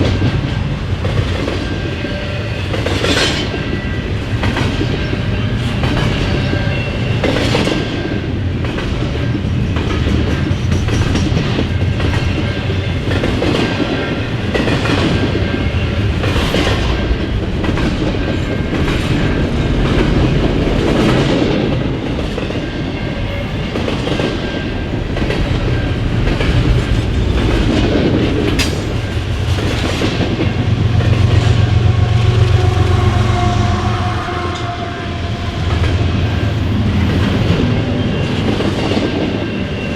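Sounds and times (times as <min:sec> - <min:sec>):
train rumbling: 0:00.0 - 0:39.9
train wheels clicking over rail joints: 0:02.6 - 0:31.9.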